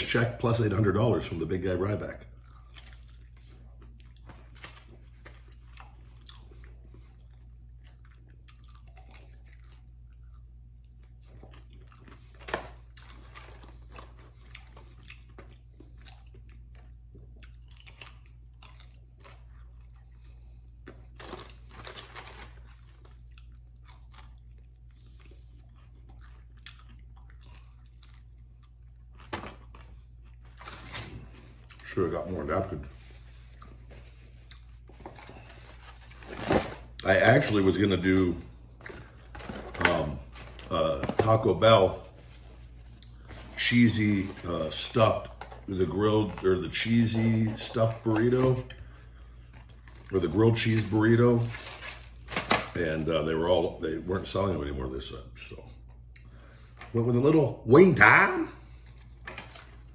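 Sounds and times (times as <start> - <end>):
man chewing chicken wings: 2.2 - 31.9, 33.0 - 36.2.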